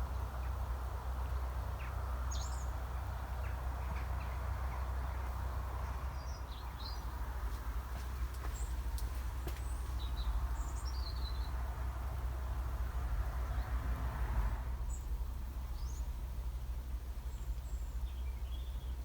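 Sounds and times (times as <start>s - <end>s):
small birds chirping: 1.8s - 11.6s, 17.2s - 19.0s
steady low rumble: 14.7s - 19.0s.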